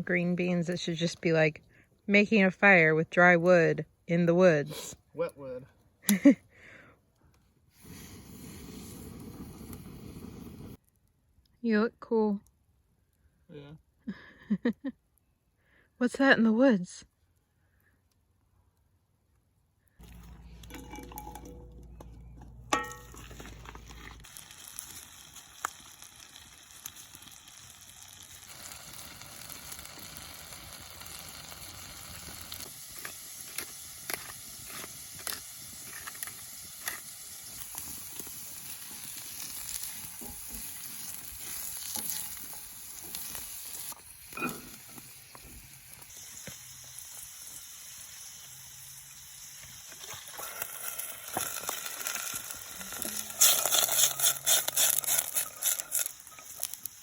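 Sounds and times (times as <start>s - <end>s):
crackles and pops: 6.0s - 11.6s, 17.0s - 57.0s
steak sizzling in a pan: 20.1s - 57.0s.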